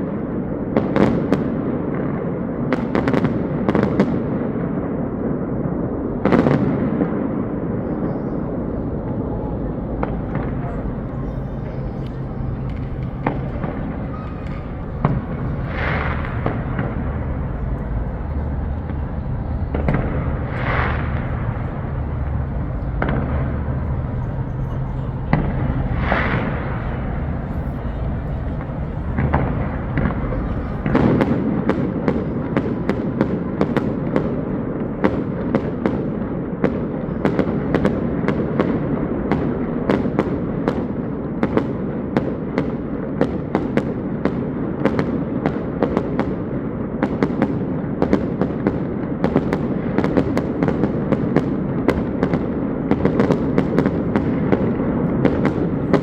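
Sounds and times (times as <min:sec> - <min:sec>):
fireworks crackling and popping: 0:09.8 - 0:31.8, 0:47.1 - 0:56.0.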